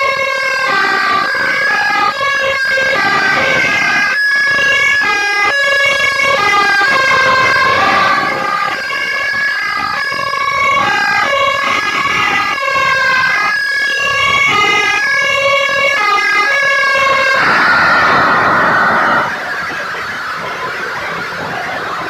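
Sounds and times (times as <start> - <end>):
traffic noise: 0.0 - 22.0
two-tone siren: 0.0 - 22.0
rushing noise: 16.4 - 22.0.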